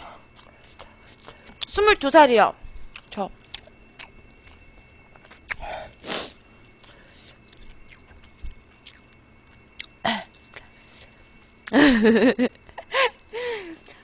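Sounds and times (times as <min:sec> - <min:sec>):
wet chewing and sucking: 0:00.0 - 0:01.7, 0:02.8 - 0:11.8
breathy sound: 0:12.9 - 0:14.0.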